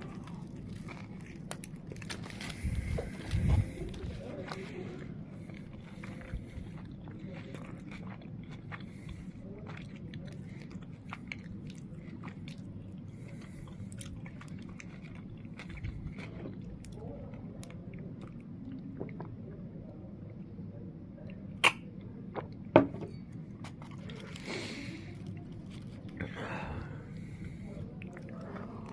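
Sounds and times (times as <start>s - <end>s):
person chewing food: 0.0s - 19.4s, 21.2s - 28.9s.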